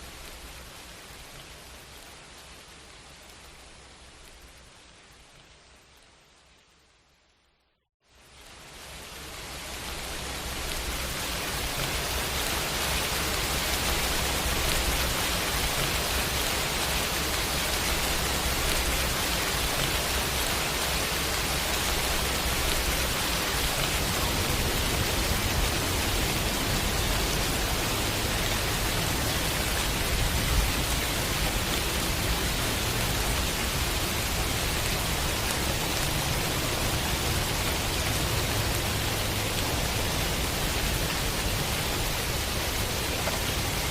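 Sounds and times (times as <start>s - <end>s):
heavy rain falling: 0.0s - 6.9s, 8.2s - 43.9s.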